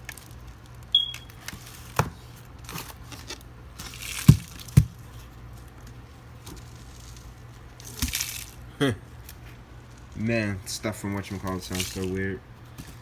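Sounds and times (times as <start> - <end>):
dull thumps: 4.2 - 5.1.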